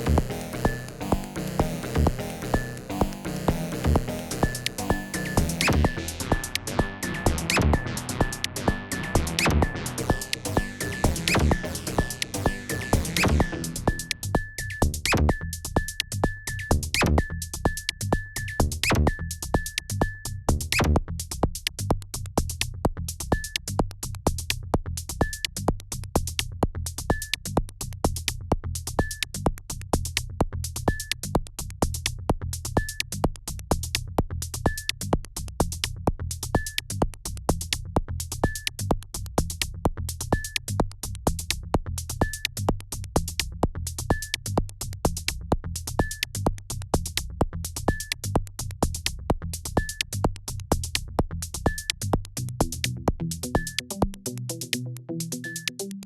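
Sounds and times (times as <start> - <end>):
high synth blip: 0.0 - 14.2
drum-machine beat: 0.0 - 56.0
low bass line: 0.0 - 56.0.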